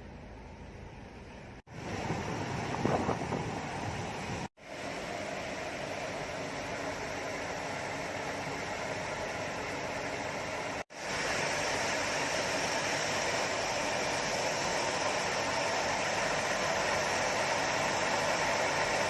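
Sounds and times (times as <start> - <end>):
steady rushing noise: 1.7 - 4.5.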